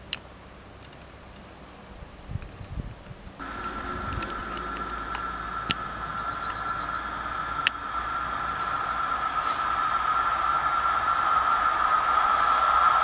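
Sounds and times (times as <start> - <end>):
rails ringing: 3.4 - 13.0
rapid ticking: 3.4 - 13.0
train rushing noise: 3.4 - 13.0.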